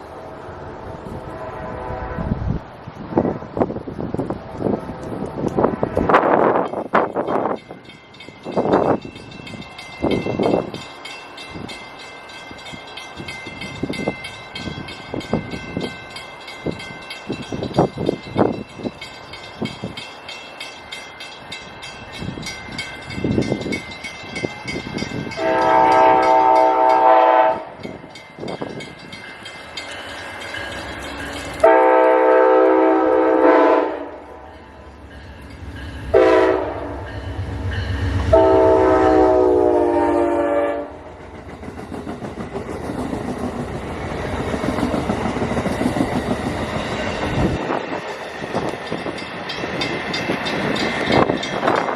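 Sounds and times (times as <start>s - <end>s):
train wheels rumbling on rails: 0.0s - 51.9s
train air horn: 1.1s - 2.6s, 25.3s - 27.8s, 31.6s - 34.4s, 36.1s - 37.1s, 38.1s - 41.1s.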